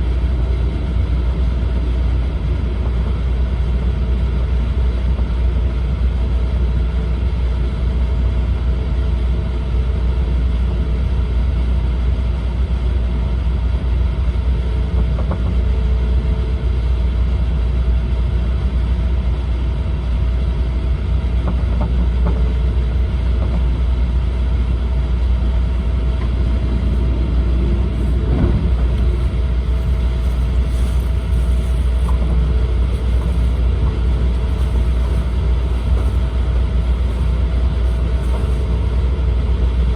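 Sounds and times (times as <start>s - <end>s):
train cabin rumble: 0.0s - 39.9s
faint hum: 22.2s - 39.9s.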